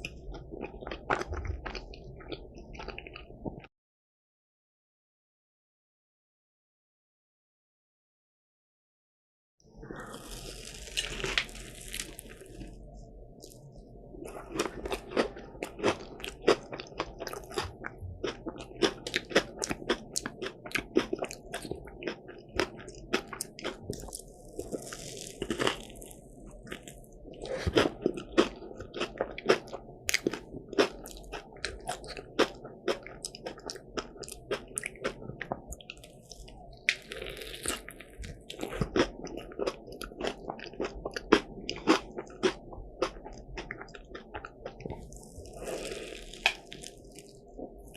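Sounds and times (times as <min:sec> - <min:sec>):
crisp pastry crunching when chewed: 0:10.0 - 0:12.8, 0:14.2 - 0:47.9.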